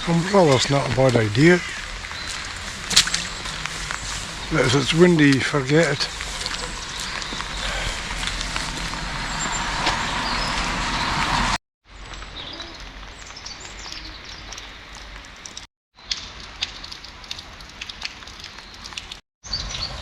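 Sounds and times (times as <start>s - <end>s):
tyres hissing on wet road: 0.0s - 11.6s.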